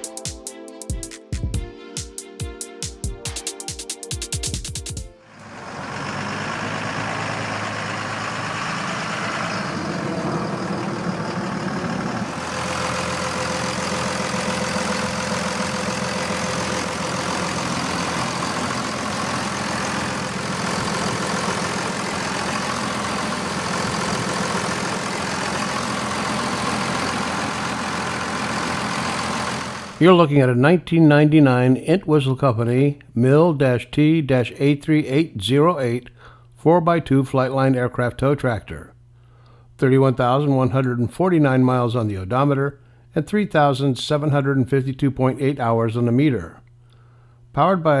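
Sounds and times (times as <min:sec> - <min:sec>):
diesel engine idling: 0:05.3 - 0:30.0.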